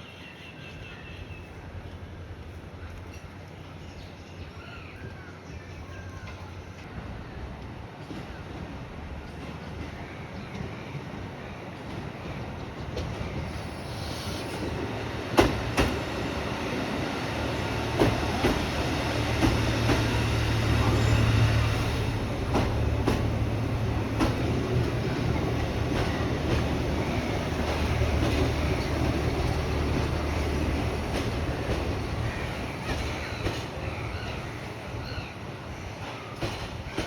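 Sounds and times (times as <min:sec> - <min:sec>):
train rumbling on rails: 0:00.2 - 0:37.0.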